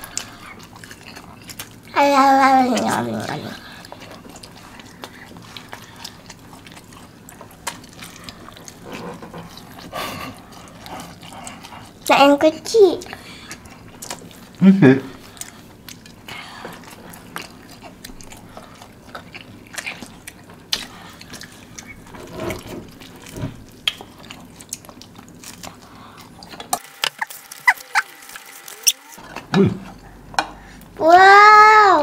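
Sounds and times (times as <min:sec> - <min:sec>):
chewing and biting food: 0:00.0 - 0:30.9.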